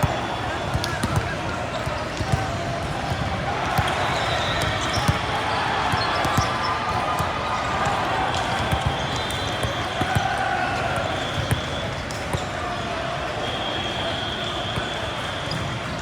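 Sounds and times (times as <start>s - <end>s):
crowd chatter: 0.0s - 16.0s
sneaker squeaks: 3.1s - 6.9s.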